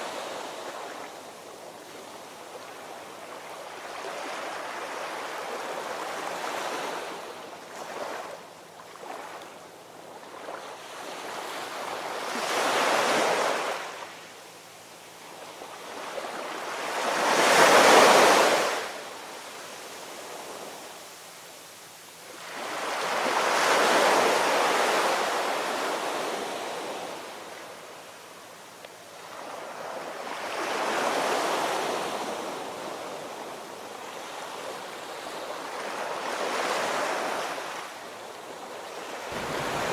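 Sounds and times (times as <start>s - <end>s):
ocean waves breaking on shore: 39.0s - 39.9s.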